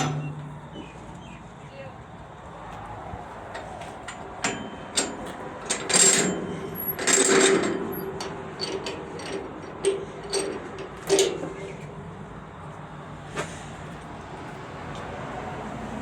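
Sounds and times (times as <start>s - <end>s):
train metallic clanks and knocks: 0.0s - 1.3s, 3.4s - 12.7s.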